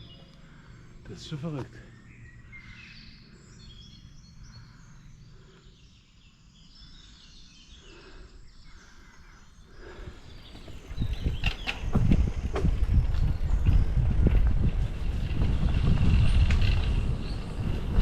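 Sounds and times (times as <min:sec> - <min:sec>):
faint birds chirping: 0:00.0 - 0:18.0
low rumble with sharp knocks: 0:11.0 - 0:18.0.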